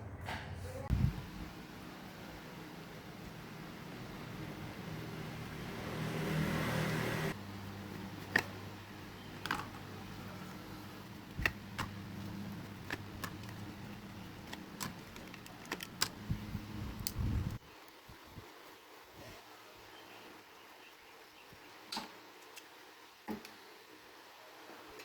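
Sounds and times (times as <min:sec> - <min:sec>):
steady low hum: 0:00.0 - 0:06.1.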